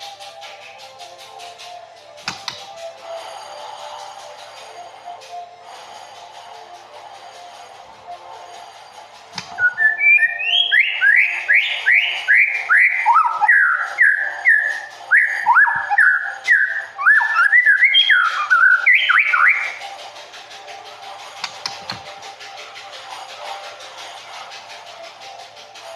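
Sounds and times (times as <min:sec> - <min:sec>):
bird singing whistled notes: 0:09.4 - 0:19.9.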